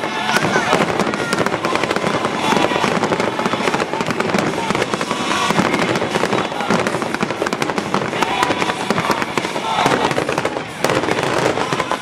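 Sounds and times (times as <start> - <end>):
fireworks bursts and crackles: 0.0 - 12.0.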